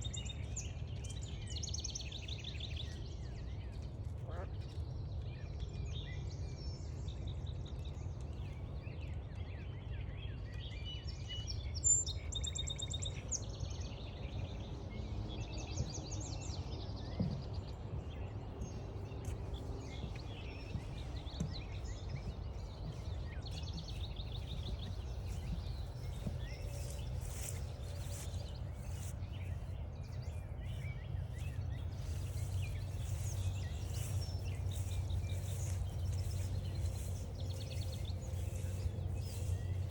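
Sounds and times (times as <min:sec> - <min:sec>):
songbirds singing and calling: 0:00.0 - 0:39.9
low outdoor rumble: 0:16.9 - 0:39.9
fast trilled bird song: 0:20.0 - 0:39.9.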